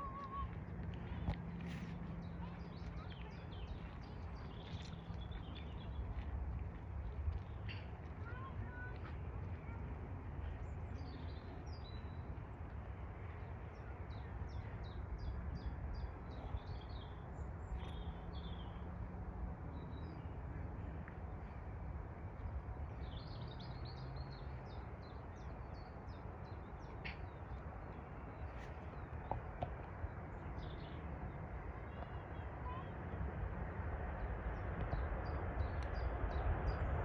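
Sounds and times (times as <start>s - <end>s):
small birds chirping: 0.0s - 6.2s
low background rumble: 0.0s - 37.0s.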